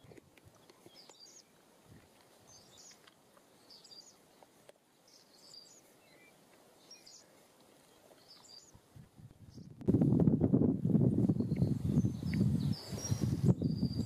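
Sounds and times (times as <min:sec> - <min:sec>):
faint high bird chirps: 0:05.1 - 0:08.8, 0:11.3 - 0:14.0.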